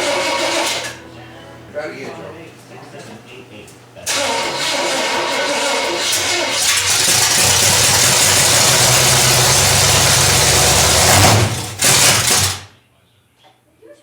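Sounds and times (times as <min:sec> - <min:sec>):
loud engine through open headers: 0:04.1 - 0:12.7.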